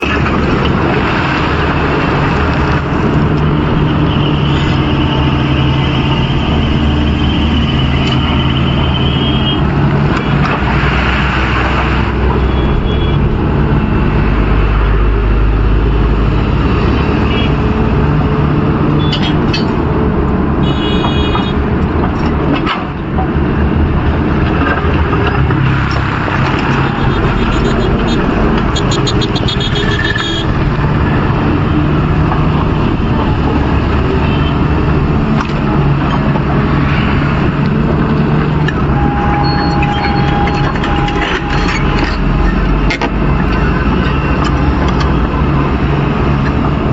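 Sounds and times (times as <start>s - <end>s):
excavator diesel engine droning: 0.0s - 46.9s
road traffic: 0.0s - 46.9s
high-pitched tones: 38.8s - 42.8s.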